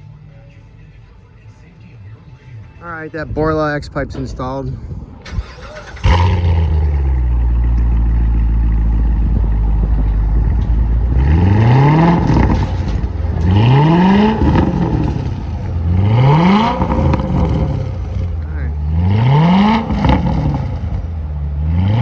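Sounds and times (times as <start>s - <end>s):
car engine starting and idling: 5.1s - 22.0s
engine revving: 5.3s - 22.0s.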